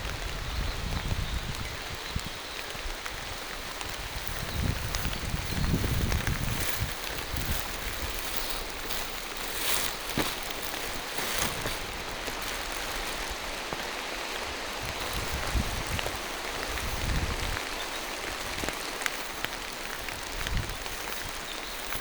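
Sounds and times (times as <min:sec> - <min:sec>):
rain falling through trees: 0:00.0 - 0:22.0.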